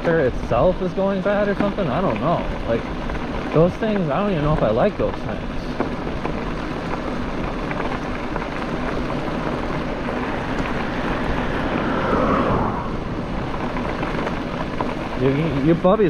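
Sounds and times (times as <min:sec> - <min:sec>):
bike rolling noise: 0:00.0 - 0:16.0
wind rushing over microphone: 0:05.4 - 0:16.0.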